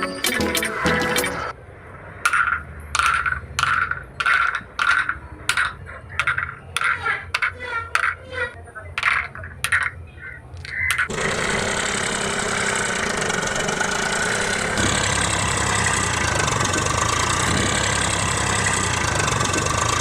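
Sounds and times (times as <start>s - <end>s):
small motor running: 11.1s - 20.0s.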